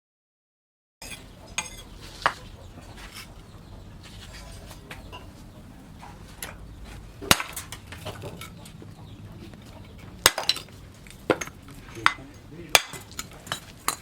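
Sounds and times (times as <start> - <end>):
sharp clinking knocks: 10.0 - 14.0.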